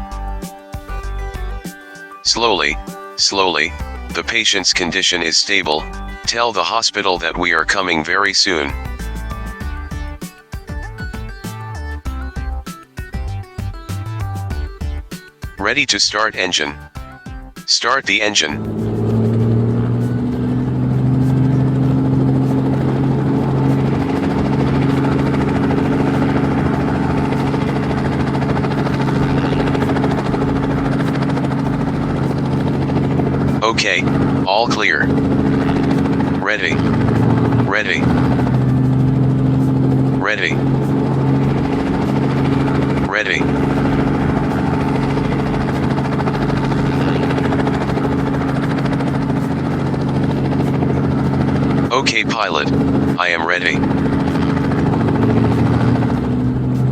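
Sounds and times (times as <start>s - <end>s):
helicopter engine and rotor: 0.4s - 56.9s.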